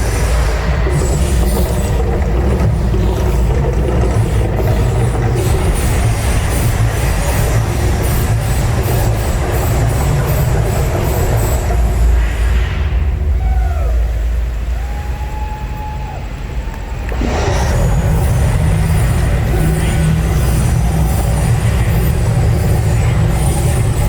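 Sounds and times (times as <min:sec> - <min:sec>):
deep rumble from loudspeakers: 0:00.0 - 0:24.0
music: 0:17.2 - 0:24.0.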